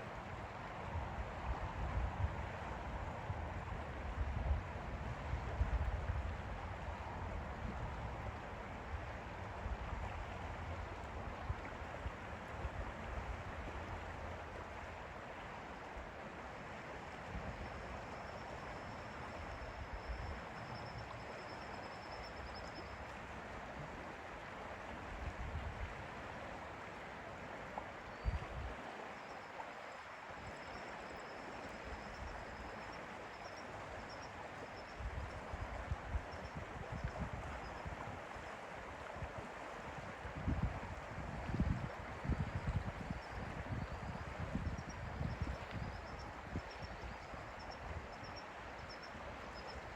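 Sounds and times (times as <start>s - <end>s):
wind on microphone: 40.0s - 48.2s.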